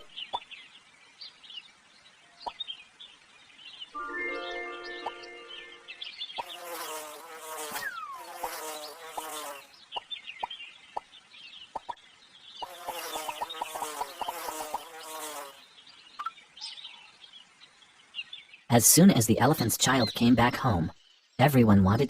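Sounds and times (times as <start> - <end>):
flies buzzing: 5.0 - 9.8, 12.6 - 15.7.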